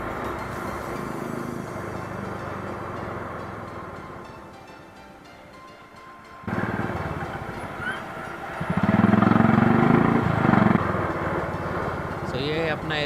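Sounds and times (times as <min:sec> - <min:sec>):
motorcycle engine running: 0:06.5 - 0:13.0.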